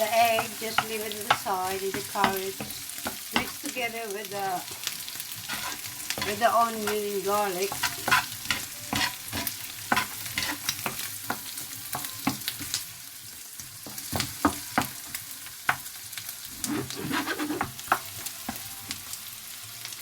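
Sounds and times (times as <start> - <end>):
vegetables sizzling in oil: 0.0 - 20.0
utensil scraping and tapping pan: 5.4 - 7.0, 7.7 - 11.4, 16.6 - 18.6.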